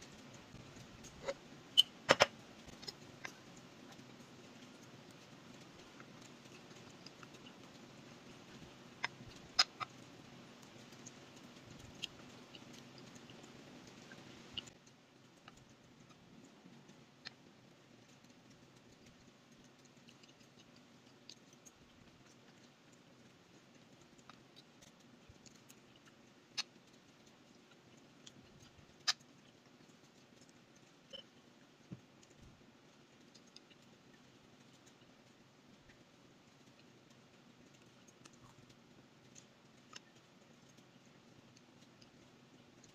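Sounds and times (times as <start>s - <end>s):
faint steady hiss: 0.0s - 42.9s.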